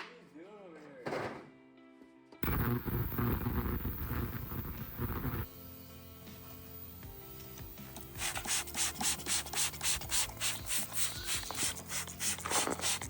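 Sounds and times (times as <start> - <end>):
hand scrubbing back and forth: 8.2 - 13.0.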